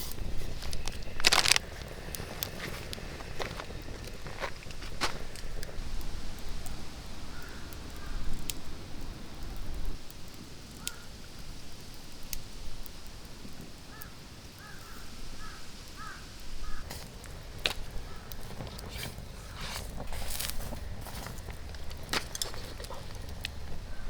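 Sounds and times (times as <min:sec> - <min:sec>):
forest ambience: 0:00.0 - 0:12.0, 0:13.0 - 0:24.0
bird calling: 0:13.9 - 0:20.0, 0:20.6 - 0:24.0.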